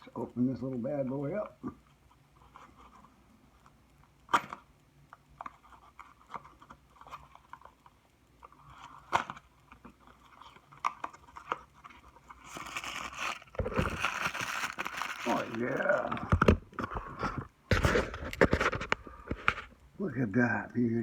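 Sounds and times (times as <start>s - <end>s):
plastic packaging crinkling: 8.4s - 19.7s.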